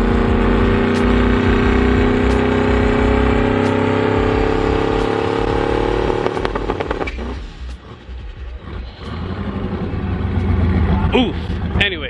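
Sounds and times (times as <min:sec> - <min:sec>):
exhaust pops and crackles: 0:00.0 - 0:08.0
car engine running: 0:00.0 - 0:12.0.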